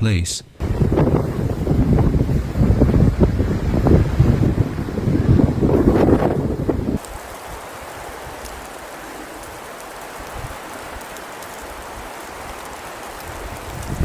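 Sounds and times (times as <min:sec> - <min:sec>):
rain-like hiss: 0:00.6 - 0:14.0
wind rumble on microphone: 0:00.6 - 0:14.0
faint ticks: 0:08.4 - 0:14.0.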